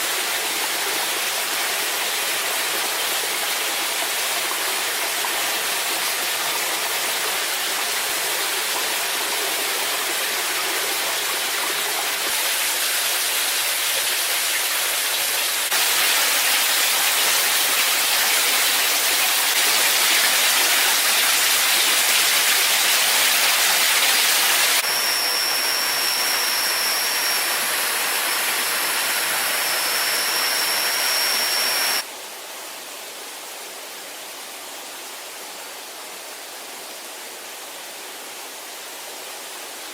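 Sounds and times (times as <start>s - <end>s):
rushing water: 0.0s - 39.9s
high-pitched whine: 18.8s - 32.0s.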